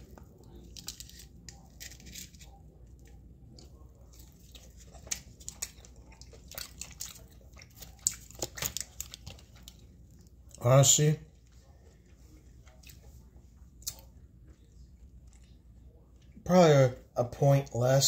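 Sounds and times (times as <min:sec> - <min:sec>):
person chewing crunchy food: 0:00.0 - 0:10.6.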